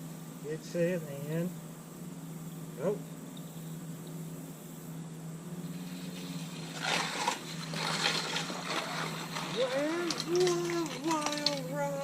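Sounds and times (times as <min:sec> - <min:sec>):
steady low hum: 0:00.0 - 0:12.0
toy motorcycles rattling on plastic track: 0:06.0 - 0:12.0.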